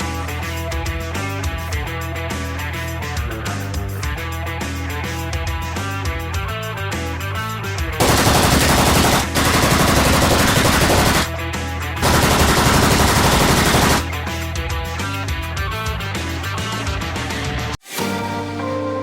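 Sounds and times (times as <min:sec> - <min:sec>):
rock guitar music: 0:00.0 - 0:10.0, 0:10.6 - 0:19.0
machine-gun fire: 0:08.0 - 0:11.4, 0:12.0 - 0:14.1.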